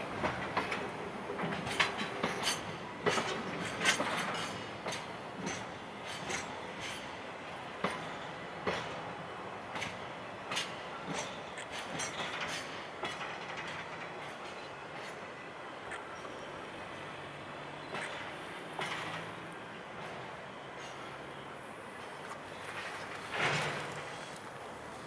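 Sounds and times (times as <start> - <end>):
train wheels clacking over rail joints: 0.0 - 25.0.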